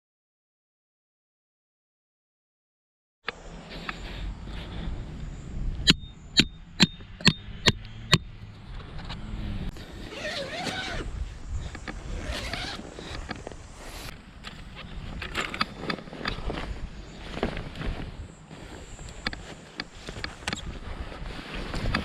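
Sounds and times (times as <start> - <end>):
wind rumbling on microphone: 3.4 - 22.0
sharp metallic knocks: 5.8 - 8.3.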